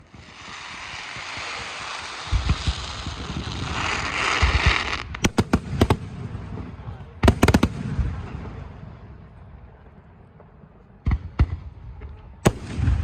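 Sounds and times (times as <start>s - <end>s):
fireworks hiss: 0.0s - 6.0s
sharp fireworks bangs: 0.0s - 9.0s, 11.0s - 13.0s
low fireworks booms: 0.0s - 13.0s.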